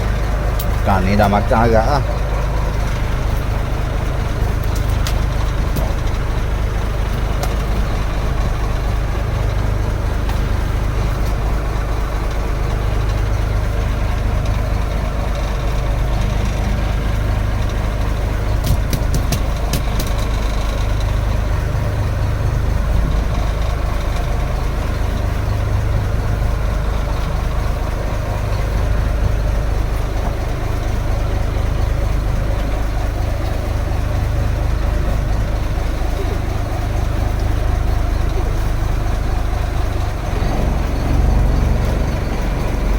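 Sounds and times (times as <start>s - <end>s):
boat engine idling: 0.0s - 42.9s
sharp clicks or knocks: 18.6s - 20.4s.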